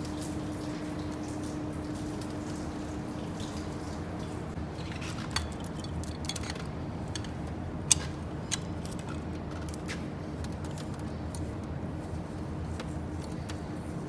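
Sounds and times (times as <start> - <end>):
metallic clicks of tools: 4.8 - 9.7.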